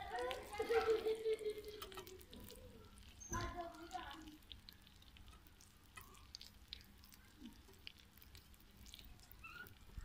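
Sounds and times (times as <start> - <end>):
omelet sizzling in pan: 0.0 - 10.0
small crackles and pops: 0.0 - 10.0.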